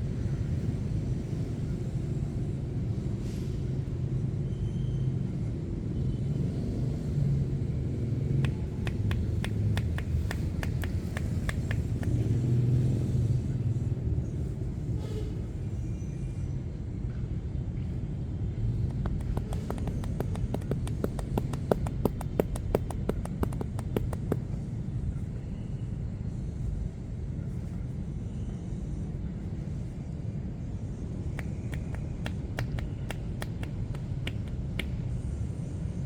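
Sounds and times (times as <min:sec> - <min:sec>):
low traffic rumble: 0:00.0 - 0:36.0
hand slaps of massage: 0:08.4 - 0:12.4, 0:18.9 - 0:24.5, 0:31.4 - 0:35.2.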